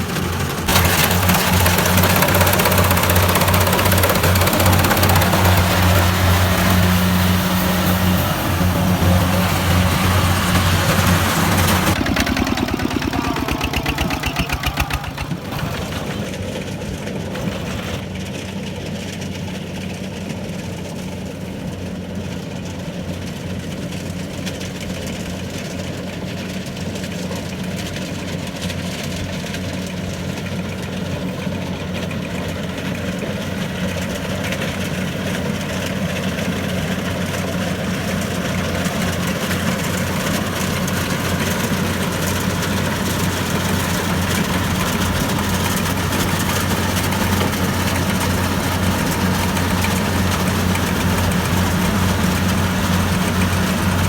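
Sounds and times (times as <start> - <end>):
diesel engine humming: 0.0 - 18.3, 30.6 - 54.0.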